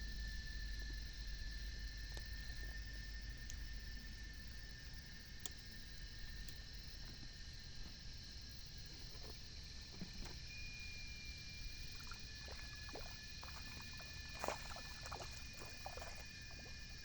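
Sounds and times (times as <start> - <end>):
water splashing around a boat: 11.8 - 17.0.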